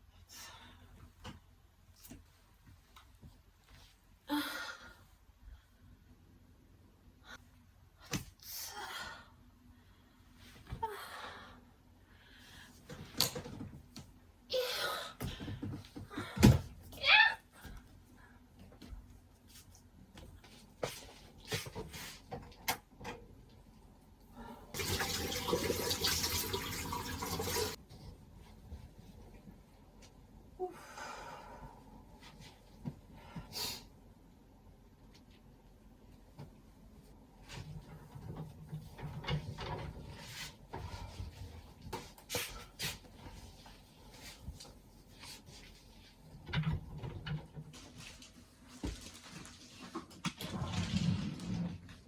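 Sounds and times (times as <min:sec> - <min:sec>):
tap water running into sink: 0:24.8 - 0:27.8.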